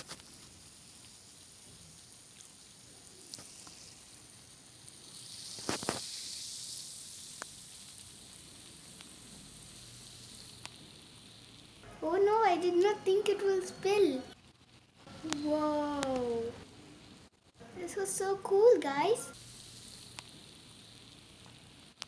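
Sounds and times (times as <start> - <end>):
bubbles fizzing: 0.0 - 11.8, 18.0 - 22.0.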